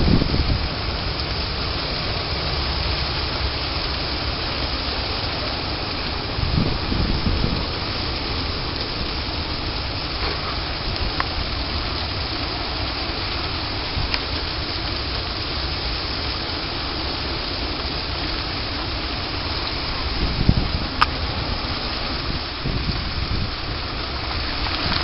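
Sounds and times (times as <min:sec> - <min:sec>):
ice rain falling: 0:00.0 - 0:25.0
storm wind: 0:00.0 - 0:25.0
faint sharp ticks: 0:21.0 - 0:21.2.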